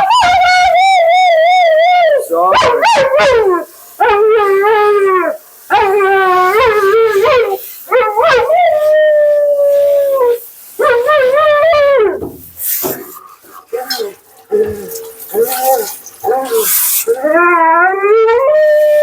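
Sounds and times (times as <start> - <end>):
dog howling: 0.0 - 12.3, 13.7 - 19.0.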